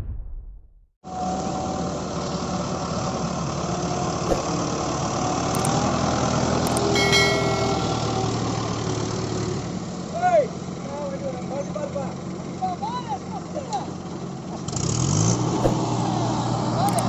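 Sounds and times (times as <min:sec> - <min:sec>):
tractor diesel engine running: 0:01.1 - 0:17.0
brief high tone: 0:06.8 - 0:08.8.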